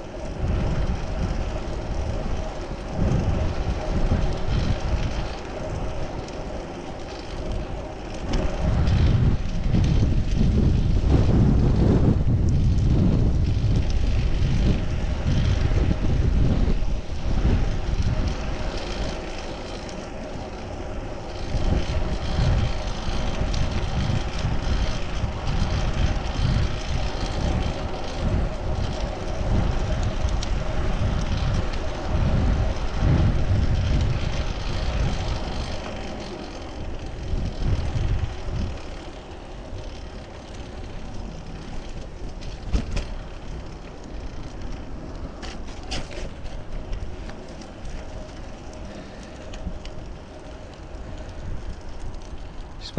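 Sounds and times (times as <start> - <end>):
hum of tyres on road: 0.0 - 52.9
wind buffeting microphone: 0.0 - 52.9.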